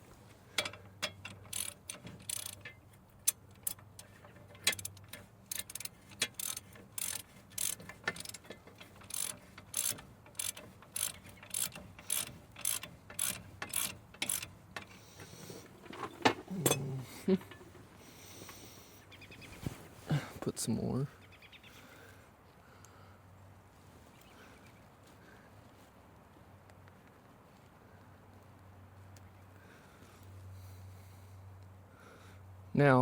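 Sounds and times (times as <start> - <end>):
ratchet wrench clicking: 0.6 - 15.4.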